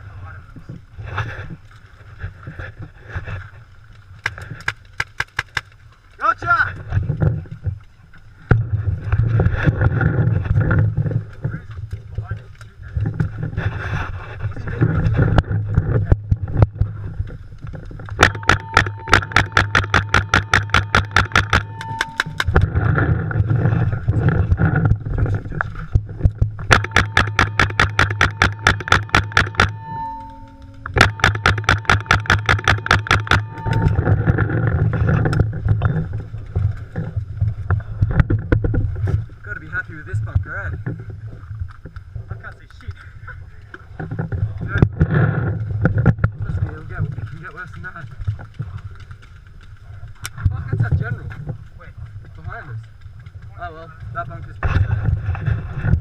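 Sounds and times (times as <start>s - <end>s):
low rumble on microphone: 6.6s - 56.0s
paintball marker firing: 18.2s - 22.6s, 26.7s - 29.7s, 31.0s - 34.0s
steady tone: 18.2s - 25.0s, 26.6s - 36.1s.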